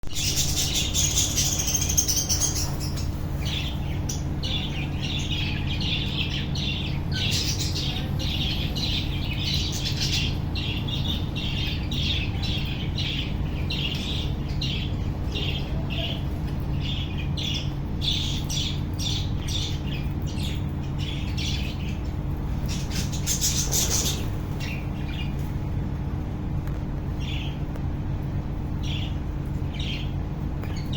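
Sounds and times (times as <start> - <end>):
steady low hum: 0.0 - 30.9
budgerigars chirping and squawking: 0.1 - 25.3.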